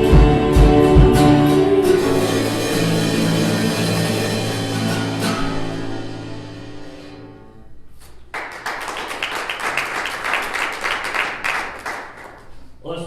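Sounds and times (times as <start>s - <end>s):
worship song chord ringing: 0.0s - 7.6s
congregation applauding: 8.3s - 12.6s.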